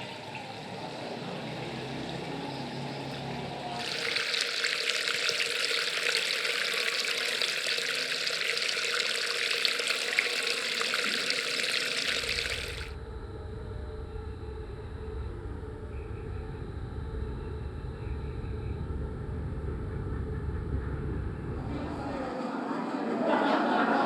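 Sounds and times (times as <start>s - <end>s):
water running and splashing: 0.0s - 12.9s
low rumble: 12.9s - 22.3s.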